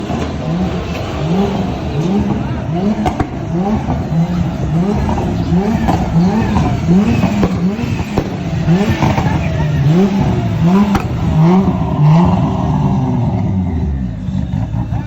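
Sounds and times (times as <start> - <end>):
car engine revving: 0.0 - 15.0
sharp crack: 2.2 - 12.3.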